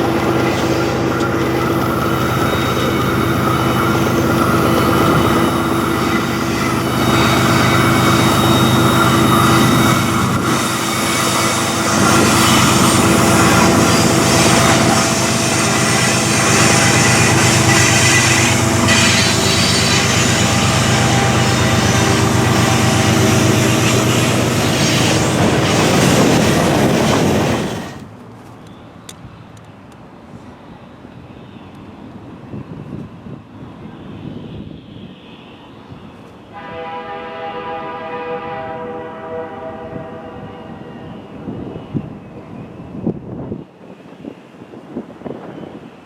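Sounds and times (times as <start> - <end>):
diesel locomotive hum: 0.0 - 46.0
train wheels rolling on rail: 0.0 - 46.0.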